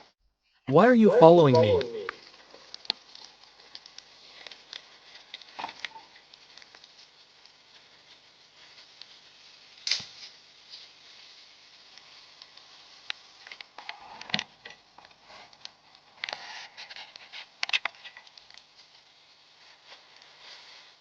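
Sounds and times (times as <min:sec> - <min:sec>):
sharp clicks and snaps: 0:17.6 - 0:18.7.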